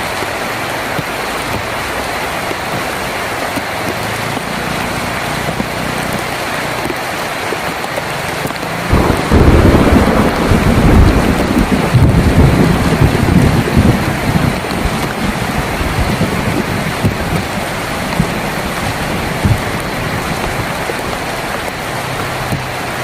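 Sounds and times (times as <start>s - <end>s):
heavy rain on a tin roof: 0.0s - 23.0s
thunder rumbling: 8.9s - 22.6s.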